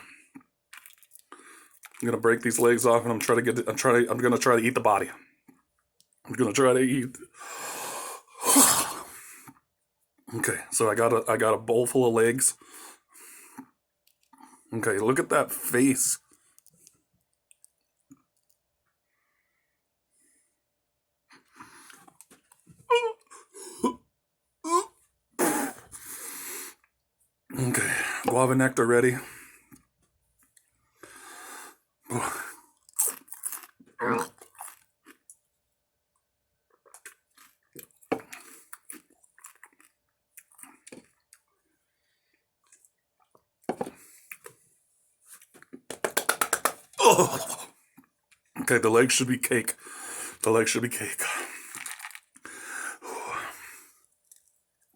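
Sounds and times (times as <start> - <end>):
person chewing with crunching: 0.0 - 2.0, 32.5 - 35.5, 36.6 - 44.6, 51.5 - 52.6, 53.9 - 54.9
man breathing: 7.3 - 9.5, 30.8 - 32.6, 49.8 - 50.4, 52.4 - 54.1
man groaning: 47.0 - 47.7.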